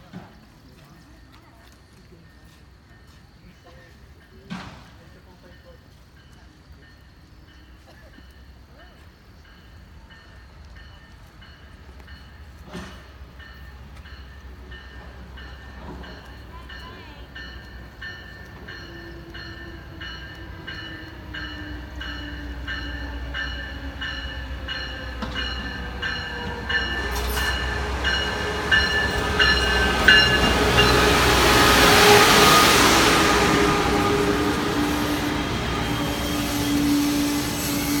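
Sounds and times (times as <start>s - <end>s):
train rumble: 0.0s - 38.0s
train bell ringing: 2.2s - 37.9s.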